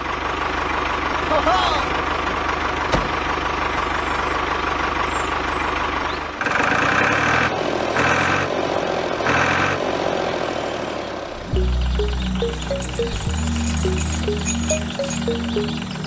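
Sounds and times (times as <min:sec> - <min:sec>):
pulsing music bursts: 0:11.6 - 0:16.0.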